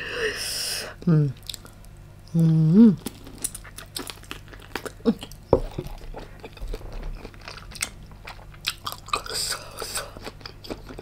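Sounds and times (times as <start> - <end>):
chewing crunchy prawn: 3.0 - 11.0.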